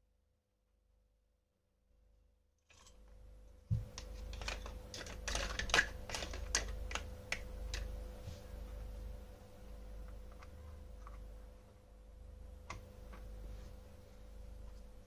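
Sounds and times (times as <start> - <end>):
low steady hum: 0.0 - 15.0
toy pieces clicking and tapping: 4.0 - 7.9.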